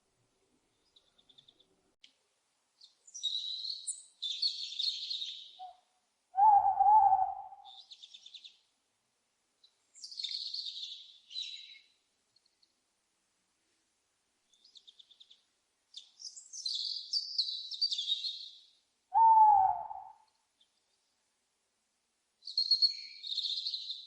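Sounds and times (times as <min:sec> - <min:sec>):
owl screeching: 0:06.4 - 0:07.7, 0:19.2 - 0:20.2
owl hooting: 0:06.4 - 0:07.8, 0:19.1 - 0:20.3.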